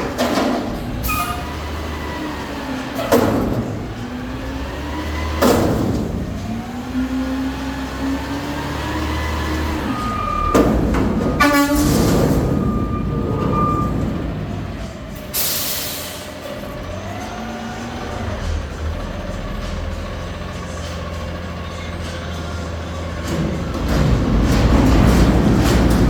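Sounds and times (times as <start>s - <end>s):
garbage truck engine running: 0.0s - 26.0s
sharp metallic bangs: 9.8s - 16.4s, 22.9s - 26.0s.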